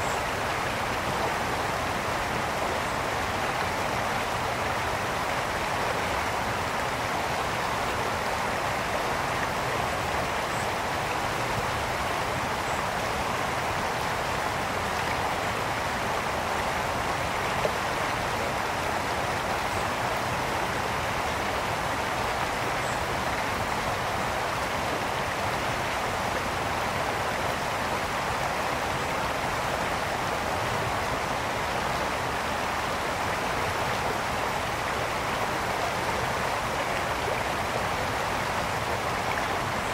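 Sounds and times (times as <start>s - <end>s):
brook water splashing over stones: 0.0s - 39.9s.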